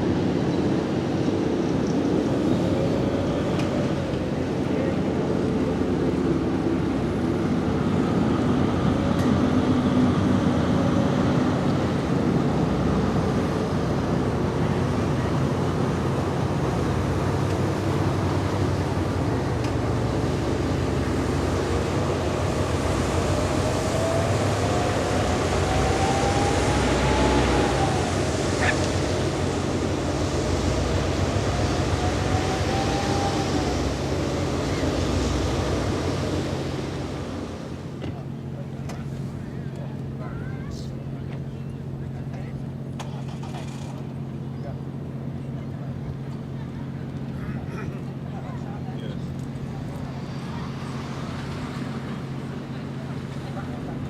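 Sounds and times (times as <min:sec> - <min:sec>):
water noise: 0:00.0 - 0:39.4
boat engine drone: 0:00.0 - 0:54.0
wind: 0:00.0 - 0:54.0.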